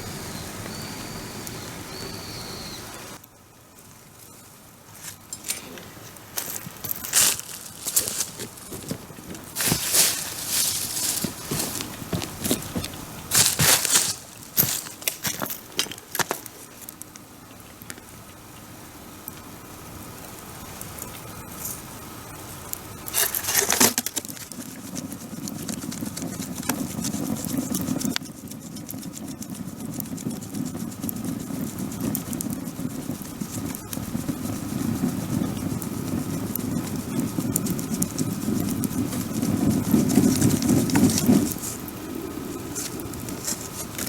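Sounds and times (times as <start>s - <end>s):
campfire crackling: 0.0s - 44.0s
steady low rumble: 24.4s - 44.0s.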